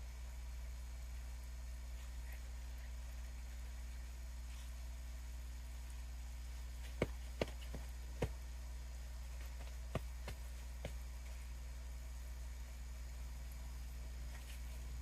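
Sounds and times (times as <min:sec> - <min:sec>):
steady low hum: 0:00.0 - 0:15.0
hands tapping a pot and soil: 0:06.9 - 0:08.4, 0:09.4 - 0:11.0.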